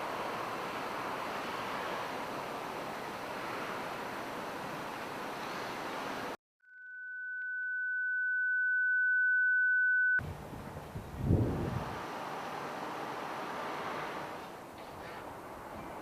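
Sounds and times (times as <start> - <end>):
steady sine tone: 6.6 - 10.2.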